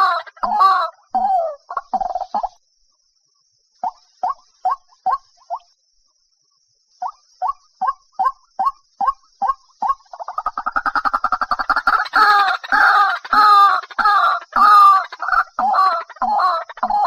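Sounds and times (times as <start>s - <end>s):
harsh repeated croaking: 7.0s - 17.0s
waterhen calling: 7.0s - 17.0s.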